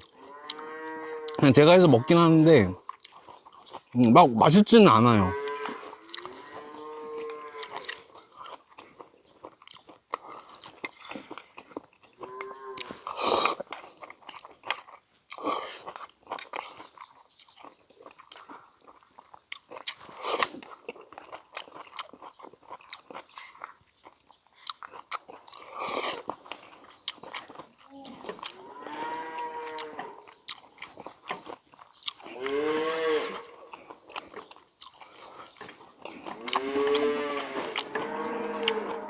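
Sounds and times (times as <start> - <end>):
drawn-out calls in background: 0.3 - 2.8
person chewing and slurping noodles: 2.8 - 4.2, 5.5 - 6.7, 7.5 - 12.2, 12.8 - 39.0.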